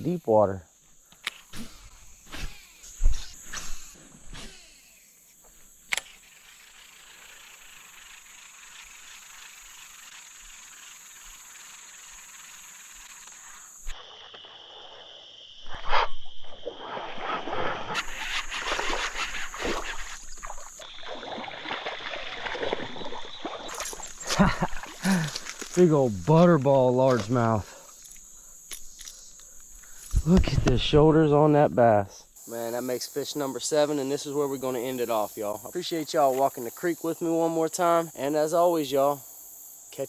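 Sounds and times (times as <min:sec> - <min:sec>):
insect buzz: 0:00.0 - 0:40.0
creek water: 0:16.5 - 0:39.1
crackling and rustling: 0:23.7 - 0:28.2.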